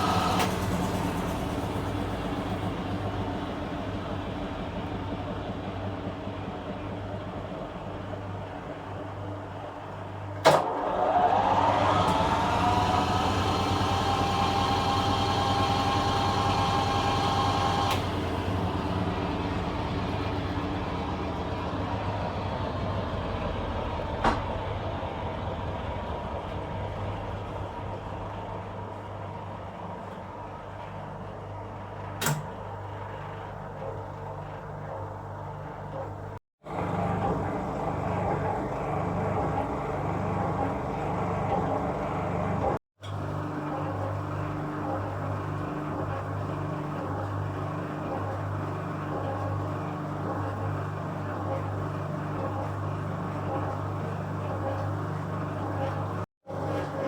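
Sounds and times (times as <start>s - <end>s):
washing machine motor whine: 0.0s - 57.0s.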